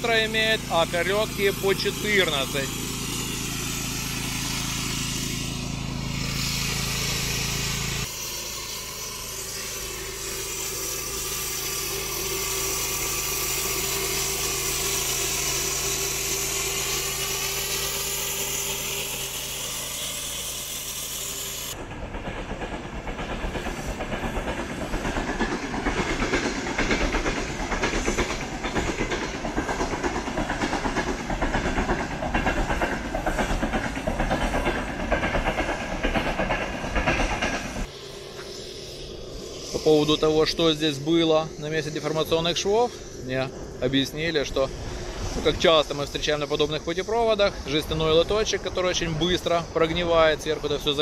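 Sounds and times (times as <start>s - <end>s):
engine hum: 0.0s - 51.0s
train wheels clattering: 6.4s - 38.6s
steady hiss: 37.6s - 51.0s.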